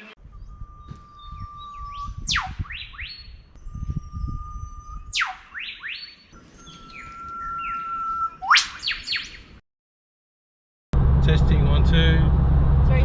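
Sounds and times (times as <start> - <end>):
bird singing whistled phrase: 0.3 - 9.4
low rumble: 11.0 - 13.0.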